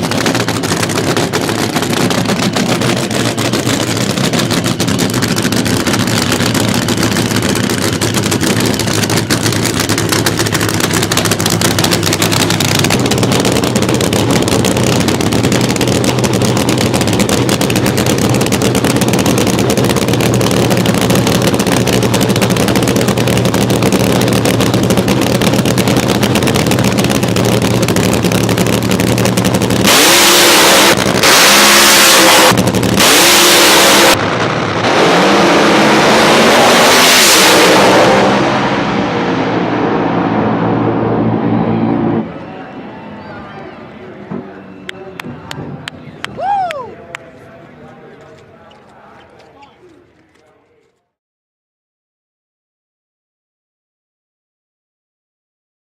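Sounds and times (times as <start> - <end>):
engine revving: 0.0 - 42.4
car engine running: 0.0 - 42.5.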